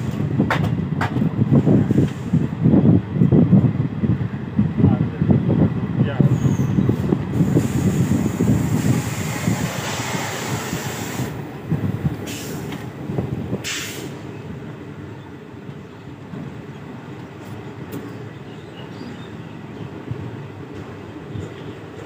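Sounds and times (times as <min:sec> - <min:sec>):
train wheels rumbling on rails: 0:00.0 - 0:22.0
short hisses: 0:13.6 - 0:14.2.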